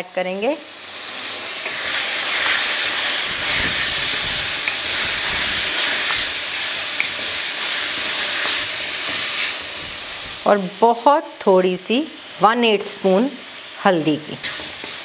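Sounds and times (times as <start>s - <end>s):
food sizzling in metal pan: 0.0s - 15.0s
water turning to steam: 1.6s - 10.5s.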